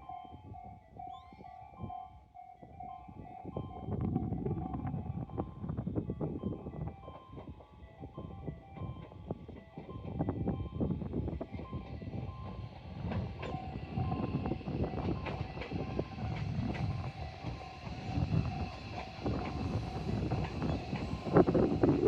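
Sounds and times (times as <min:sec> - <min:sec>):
train low rumble: 0:00.0 - 0:22.0
train wheels clicking: 0:11.2 - 0:22.0.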